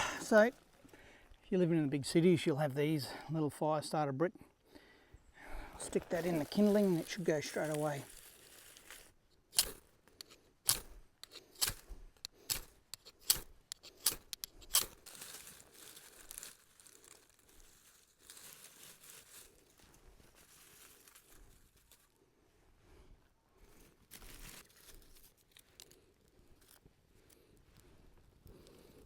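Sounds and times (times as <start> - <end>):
rustling and crinkling: 5.5 - 22.3, 23.6 - 29.0.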